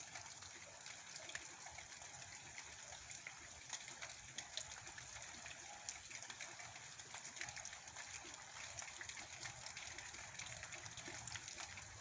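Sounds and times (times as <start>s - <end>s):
raindrops clicking close by: 0.0s - 12.0s
steady rain falling: 5.8s - 12.0s.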